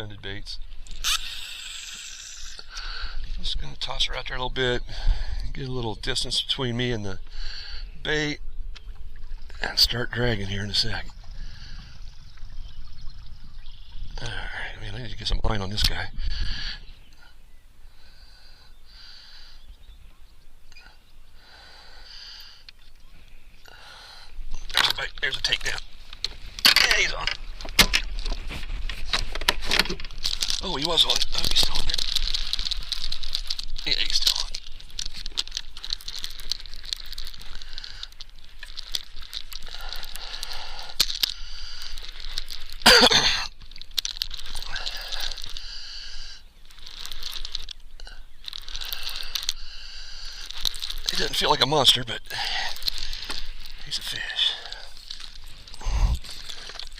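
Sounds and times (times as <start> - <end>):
faint hiss: 0.8 - 3.3
fishing reel clicking: 0.9 - 2.8, 48.5 - 51.4
fishing reel clicking and cranking: 0.9 - 2.8, 29.7 - 42.8, 48.4 - 52.0.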